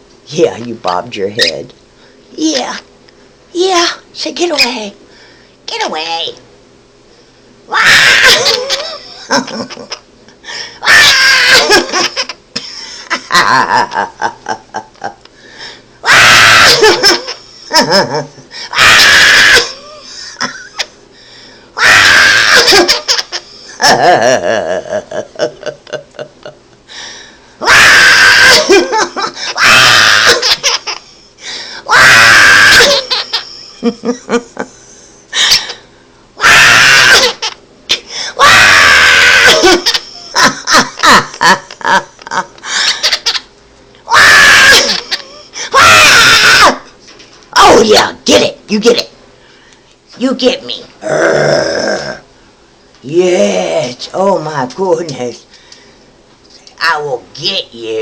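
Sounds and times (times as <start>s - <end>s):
parrot laughter-like chatter: 7.8s - 10.0s, 10.8s - 15.1s, 16.1s - 21.0s, 21.8s - 25.7s, 27.8s - 31.3s, 31.9s - 34.7s, 36.4s - 38.0s, 39.3s - 43.5s, 44.1s - 46.6s
person making silly noises: 50.8s - 52.3s.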